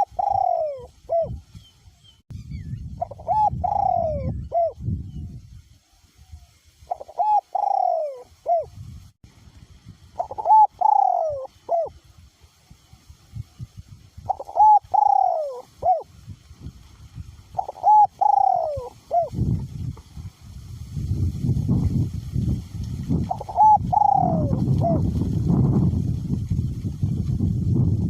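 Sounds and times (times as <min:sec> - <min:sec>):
dove cooing: 0:00.0 - 0:01.4, 0:03.0 - 0:04.8, 0:06.9 - 0:08.7, 0:10.2 - 0:11.9, 0:14.3 - 0:16.1, 0:17.5 - 0:19.4, 0:23.3 - 0:25.1.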